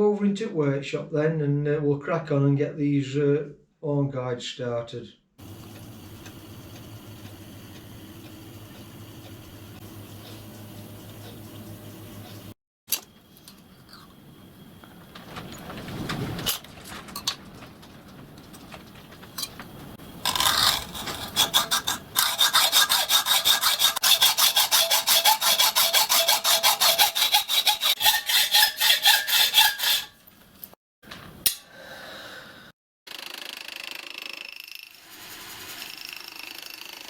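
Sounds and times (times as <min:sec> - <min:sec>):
hand tool cutting metal: 0:20.2 - 0:30.2.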